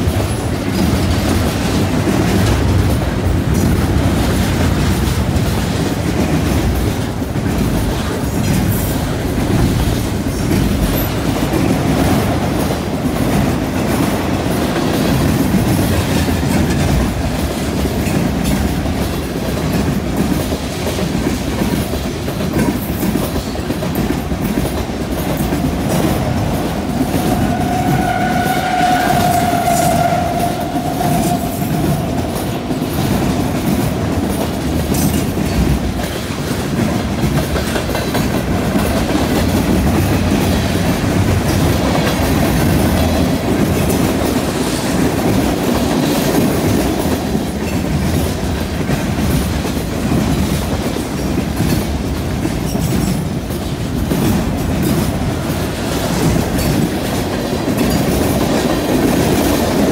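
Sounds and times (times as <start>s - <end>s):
freight train wheels clattering: 0.0s - 59.9s.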